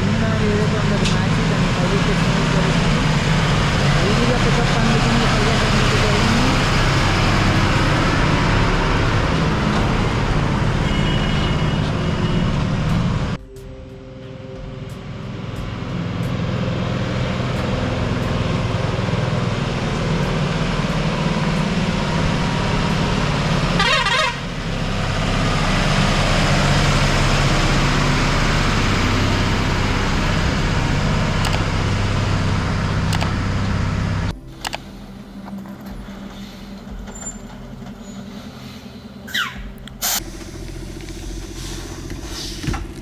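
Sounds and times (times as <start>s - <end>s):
truck diesel engine under load: 0.0s - 13.4s, 15.0s - 35.0s, 39.9s - 43.0s
warbling horn toot: 6.3s - 13.2s, 22.3s - 31.3s.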